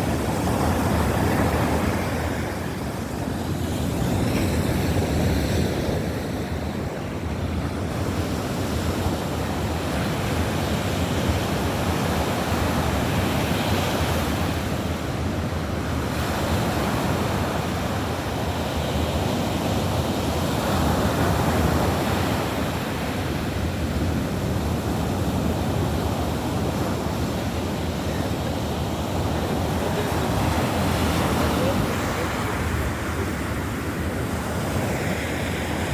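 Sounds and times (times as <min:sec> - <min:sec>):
surf breaking on beach: 0:26.3 - 0:35.9.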